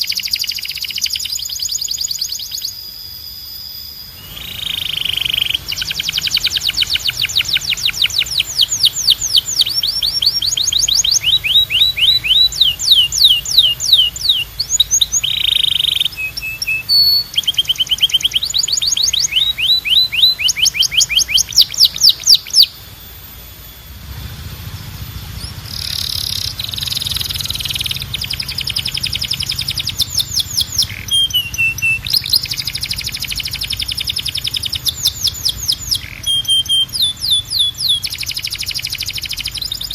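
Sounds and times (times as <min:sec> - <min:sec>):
canary singing trills: 0:00.0 - 0:39.9
low hum: 0:01.5 - 0:39.9.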